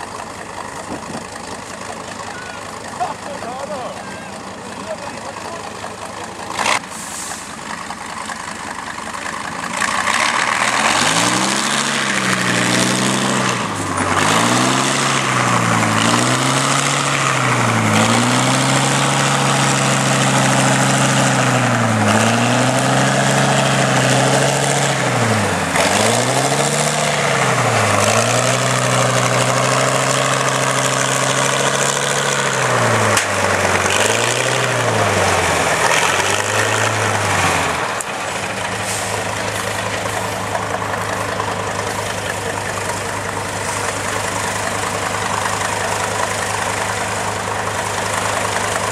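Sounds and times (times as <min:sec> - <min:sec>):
diesel truck engine revving: 0:00.0 - 0:48.9.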